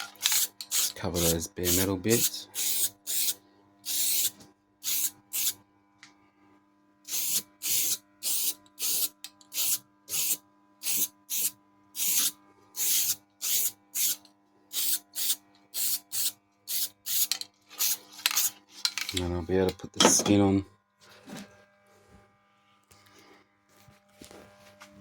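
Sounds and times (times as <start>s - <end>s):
aerosol can spraying: 0.2s - 5.6s, 7.1s - 18.6s.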